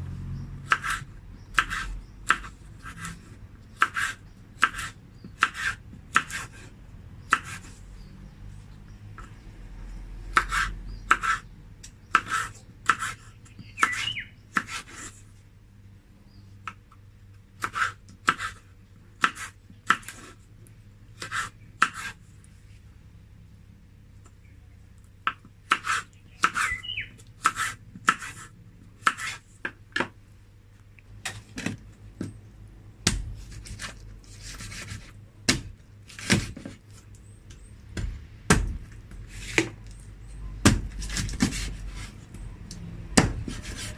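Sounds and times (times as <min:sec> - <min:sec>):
knife chopping on cutting board: 0:01.6 - 0:03.1, 0:03.8 - 0:06.5, 0:07.3 - 0:07.7, 0:10.3 - 0:11.4, 0:12.1 - 0:13.2, 0:17.6 - 0:18.6, 0:19.2 - 0:20.3, 0:25.3 - 0:26.7, 0:27.4 - 0:28.4, 0:29.0 - 0:30.1, 0:33.0 - 0:36.8, 0:40.6 - 0:42.1, 0:43.2 - 0:43.9.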